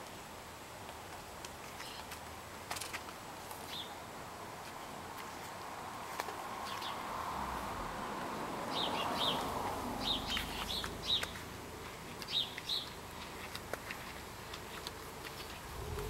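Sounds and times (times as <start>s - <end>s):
steady background hiss: 0.0s - 16.0s
small birds chirping: 1.6s - 2.2s, 3.6s - 4.0s, 6.6s - 7.1s, 8.6s - 16.0s.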